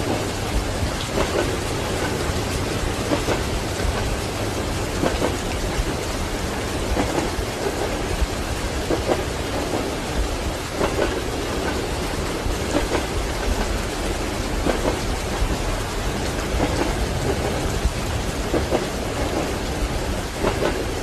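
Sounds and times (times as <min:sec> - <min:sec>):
steady rain: 0:00.0 - 0:21.0
train wheels clacking over rails: 0:00.0 - 0:21.0.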